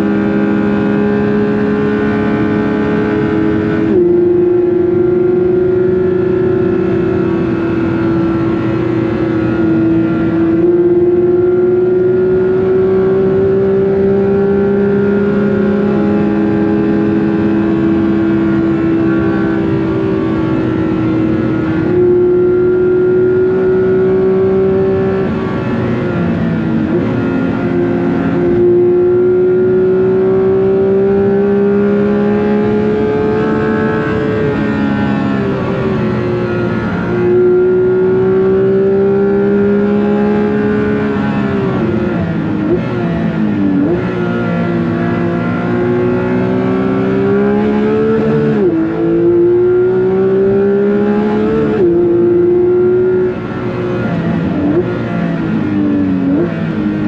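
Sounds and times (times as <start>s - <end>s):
car engine at high revs accelerating: 0.0s - 57.0s.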